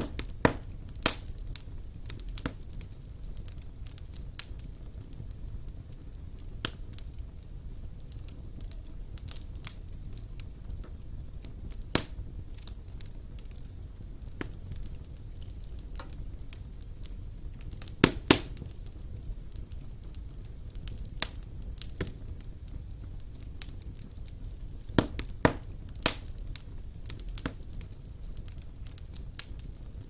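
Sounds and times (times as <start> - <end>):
fire crackles and pops: 0.0 - 30.0
wood fire rumbling: 0.0 - 30.0.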